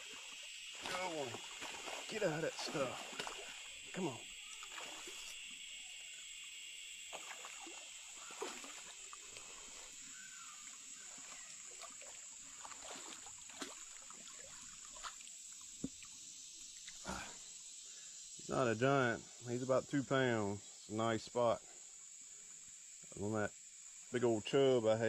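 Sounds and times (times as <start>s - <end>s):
faint water splashing: 0.0s - 6.4s, 7.0s - 18.0s
insects droning: 0.0s - 25.0s.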